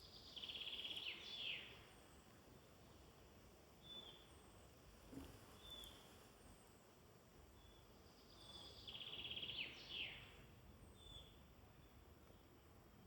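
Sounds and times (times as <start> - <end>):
songbird trill: 0.0 - 1.8, 7.6 - 10.3.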